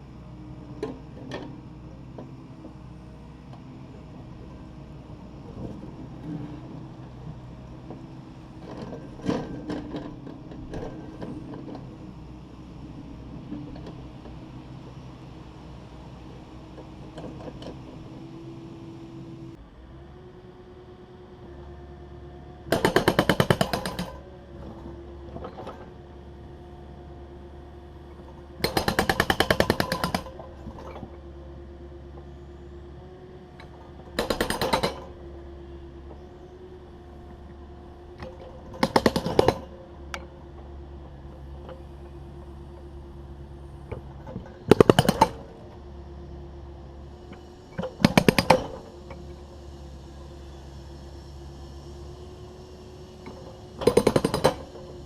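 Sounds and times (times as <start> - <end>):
diesel engine running: 0.0 - 55.0
hydraulic breaker hammering concrete: 22.7 - 24.2, 28.6 - 30.3, 34.2 - 35.0, 38.8 - 39.7, 44.7 - 45.5, 47.9 - 48.8, 53.8 - 54.8.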